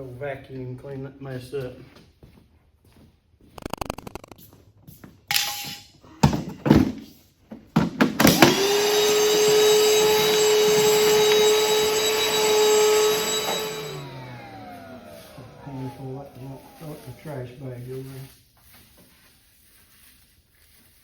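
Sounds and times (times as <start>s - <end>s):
vacuum cleaner motor whine: 8.2s - 17.7s.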